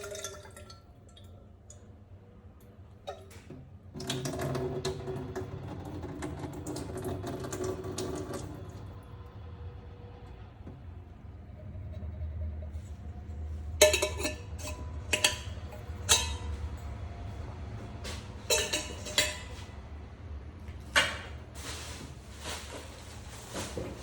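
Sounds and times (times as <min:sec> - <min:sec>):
steady low hum: 0:08.2 - 0:24.0
metal tools clinking: 0:18.4 - 0:19.7
rustling: 0:21.5 - 0:24.0.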